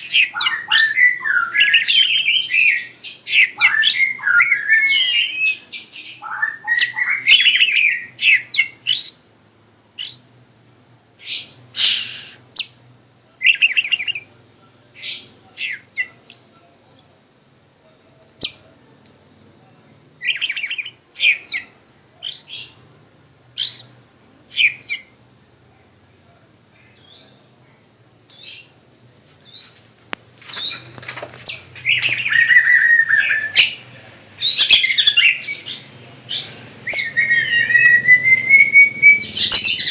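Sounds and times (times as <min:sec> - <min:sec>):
songbird chirping and warbling: 0:00.0 - 0:17.2, 0:17.9 - 0:39.9.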